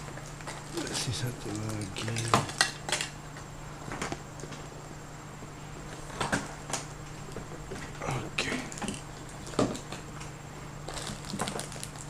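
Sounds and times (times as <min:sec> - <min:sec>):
packaging rustling: 0:10.9 - 0:12.0.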